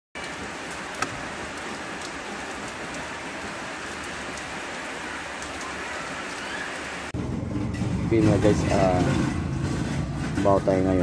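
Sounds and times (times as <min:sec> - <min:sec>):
rain falling on a car: 0:00.2 - 0:07.2.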